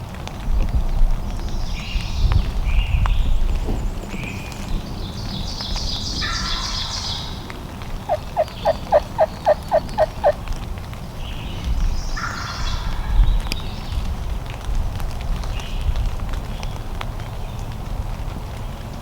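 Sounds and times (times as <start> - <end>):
low wind rumble: 0.0 - 19.0
songbirds chirping: 1.3 - 14.1
turkey yelps: 8.1 - 10.4.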